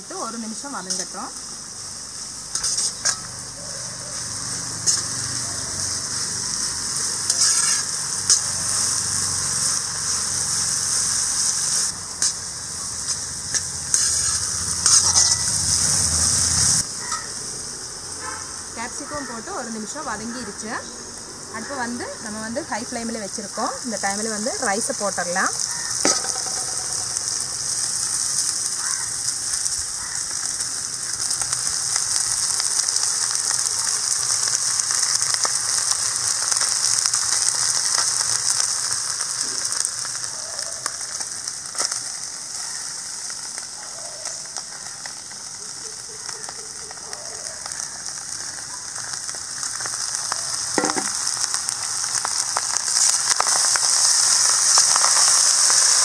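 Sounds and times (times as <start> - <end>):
food sizzling in a wok: 0.0 - 56.0
metal ladle knocking on pan: 26.0 - 27.3, 50.8 - 51.2.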